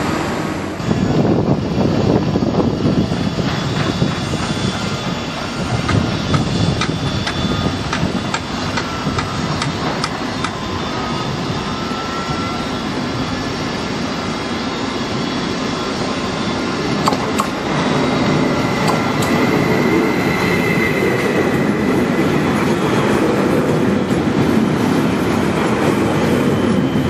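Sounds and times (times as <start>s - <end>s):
electric train rumbling: 0.0s - 27.0s
wheels clacking over rail switches: 17.0s - 17.6s, 18.8s - 19.4s.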